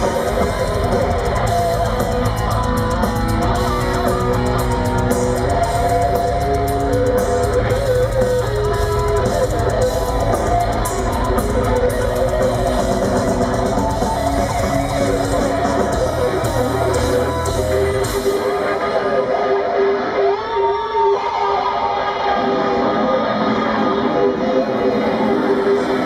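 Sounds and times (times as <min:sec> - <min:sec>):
guitar melody of held notes: 0:00.0 - 0:20.7
heavy metal band playing: 0:00.0 - 0:26.0.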